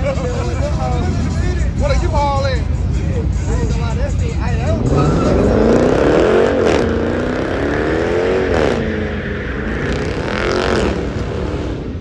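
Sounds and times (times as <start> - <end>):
car engine revving: 2.7 - 12.0.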